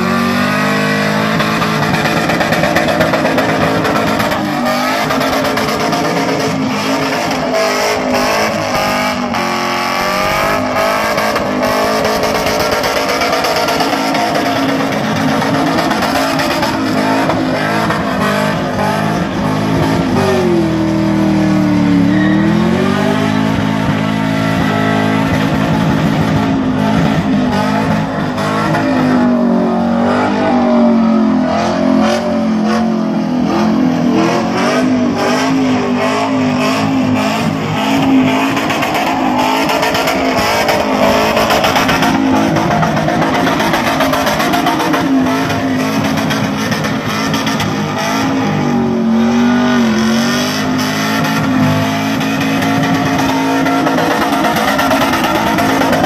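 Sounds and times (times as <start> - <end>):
car engine at high revs: 0.0 - 56.0
tyres squealing on wet surface: 21.9 - 23.2.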